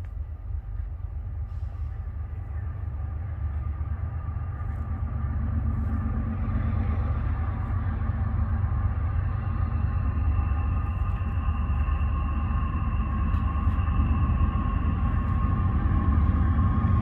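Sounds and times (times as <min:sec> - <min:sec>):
diesel freight train rumbling: 0:00.0 - 0:17.0.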